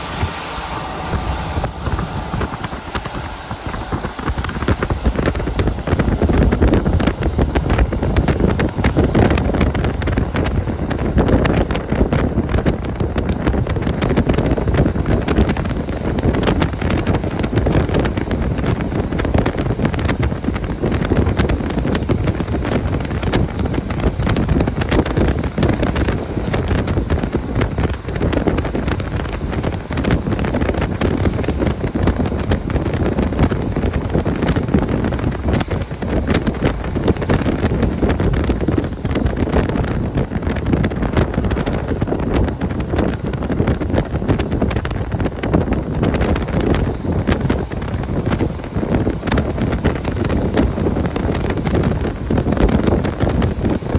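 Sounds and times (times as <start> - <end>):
railcar engine and wheels rumbling: 0.0 - 53.9.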